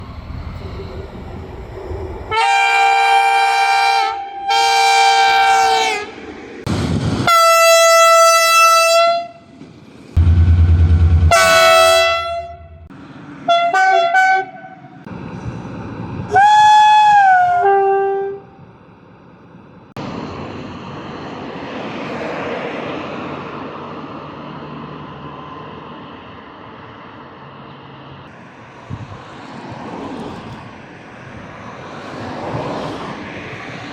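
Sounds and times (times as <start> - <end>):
steady rumbling noise: 0.0 - 3.8, 10.0 - 13.2
train horn blasts: 2.3 - 6.2, 7.2 - 9.4, 11.1 - 12.9, 13.5 - 15.0, 16.3 - 18.6.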